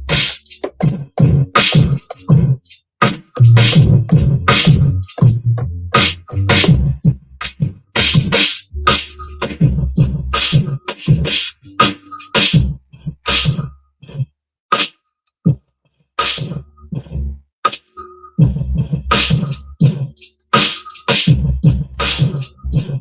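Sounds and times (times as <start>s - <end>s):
hip-hop beat: 0.0s - 13.7s, 18.4s - 23.0s.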